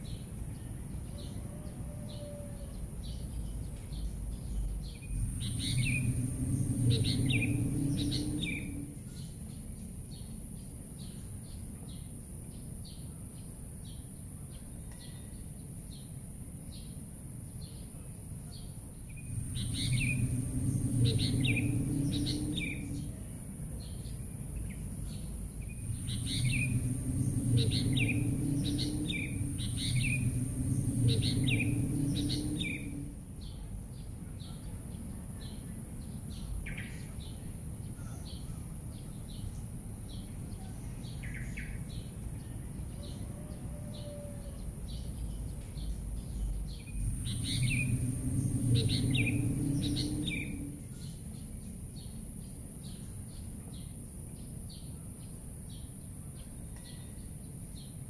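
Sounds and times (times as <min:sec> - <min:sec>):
low hum: 0:02.6 - 0:10.8, 0:18.9 - 0:43.7, 0:44.4 - 0:53.7
birds calling: 0:03.4 - 0:09.3, 0:19.2 - 0:24.0, 0:24.6 - 0:33.6, 0:45.2 - 0:51.3.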